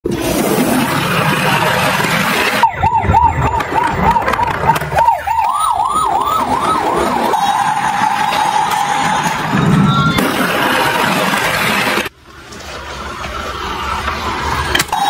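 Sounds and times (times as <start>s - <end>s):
electronic emergency siren: 0.9s - 12.1s.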